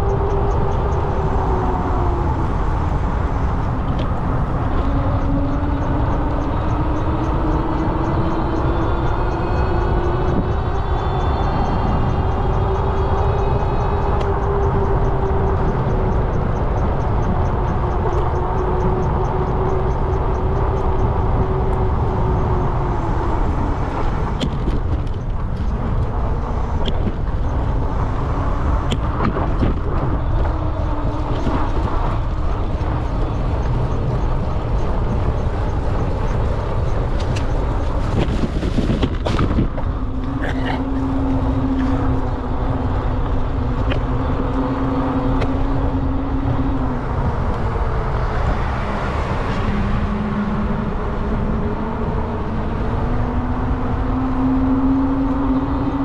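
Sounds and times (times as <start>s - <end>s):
road noise: 0.0s - 56.0s
wind rumbling on microphone: 0.0s - 56.0s.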